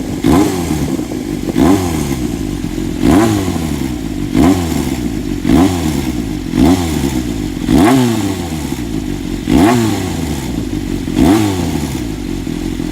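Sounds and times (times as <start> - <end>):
motorcycle engine idling and revving: 0.0 - 12.9.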